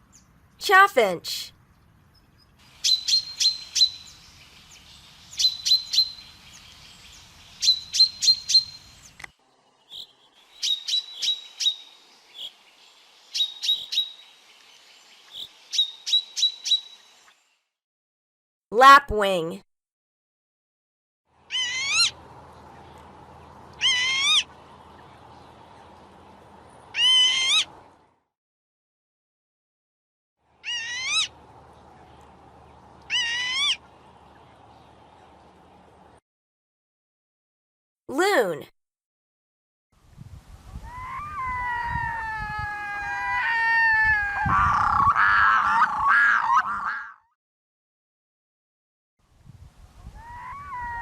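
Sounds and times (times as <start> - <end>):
faint field recording hiss: 0.0 - 17.6, 21.3 - 28.2, 30.5 - 36.2, 40.0 - 46.1, 49.2 - 51.0
lapwing calling: 2.7 - 9.2, 21.4 - 27.8, 30.6 - 31.4, 33.0 - 34.9, 40.8 - 47.2, 50.1 - 51.0
loon wailing: 23.8 - 24.5, 40.8 - 47.2, 50.2 - 51.0
loon warbling call: 40.9 - 47.2.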